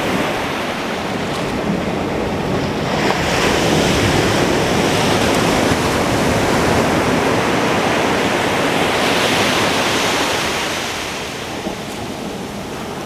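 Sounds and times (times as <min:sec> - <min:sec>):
ocean surf breaking: 0:00.0 - 0:13.0
wind on microphone: 0:00.0 - 0:13.0.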